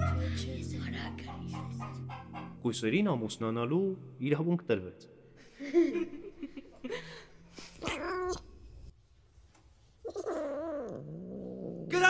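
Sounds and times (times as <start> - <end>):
cat meowing: 7.8 - 8.5.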